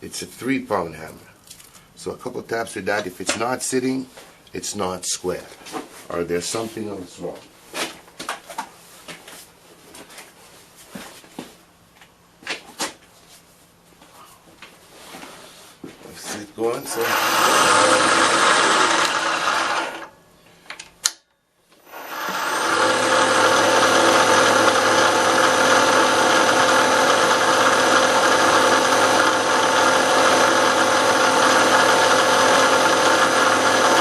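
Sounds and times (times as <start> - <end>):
milling machine cutting metal: 16.8 - 20.1, 21.8 - 34.0.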